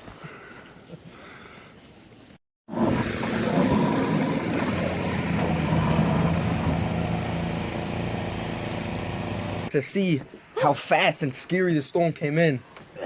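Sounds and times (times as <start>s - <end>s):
engine humming steadily: 2.9s - 9.7s.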